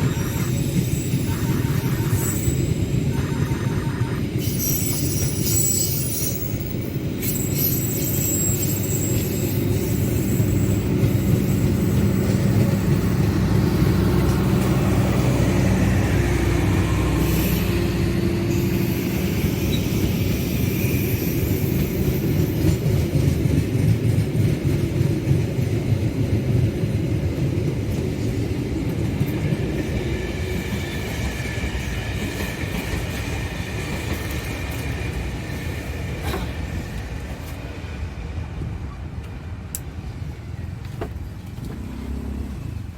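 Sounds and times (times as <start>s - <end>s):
high wheel squeal: 0.0s - 23.0s
train rumbling on rails: 0.0s - 42.9s.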